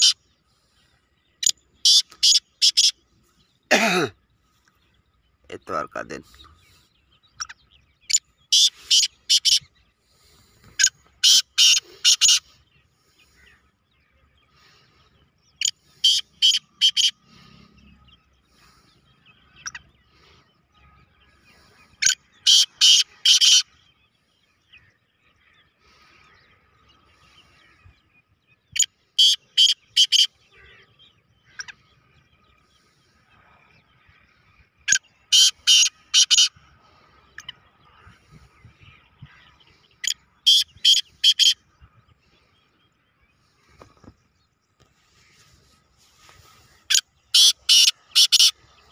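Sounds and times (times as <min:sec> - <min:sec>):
francolin calling: 0:00.0 - 0:03.1, 0:05.5 - 0:13.7, 0:14.4 - 0:20.4, 0:28.7 - 0:41.9, 0:46.1 - 0:48.9.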